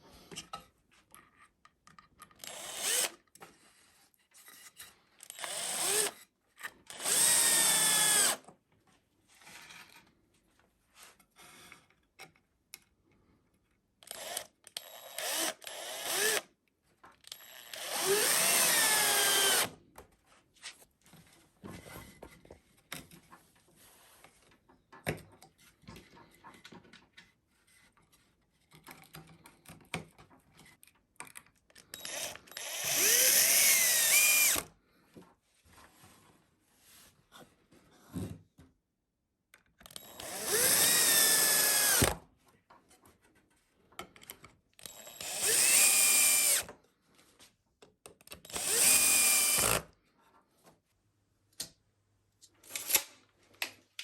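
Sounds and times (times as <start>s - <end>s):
power drill into wood: 2.4s - 3.2s, 5.3s - 6.2s, 6.9s - 8.4s, 15.0s - 16.5s, 17.6s - 19.7s, 32.0s - 34.7s, 40.0s - 42.2s, 44.8s - 46.7s, 48.5s - 49.9s.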